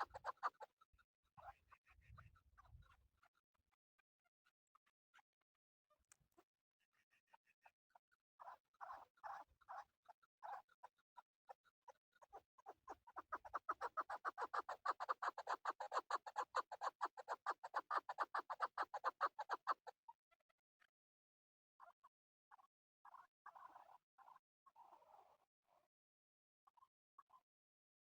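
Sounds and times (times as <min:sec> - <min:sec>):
partridge clucking calls: 0:00.0 - 0:00.7, 0:12.2 - 0:19.9.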